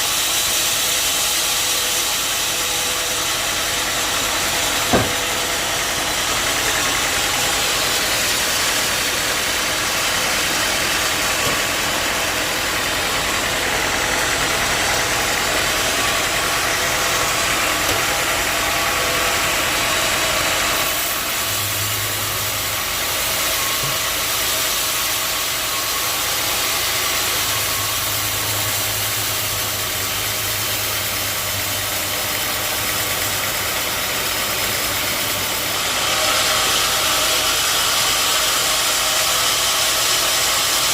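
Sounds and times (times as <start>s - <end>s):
saw hissing: 0.0s - 40.9s
sawmill machine noise: 0.0s - 40.9s.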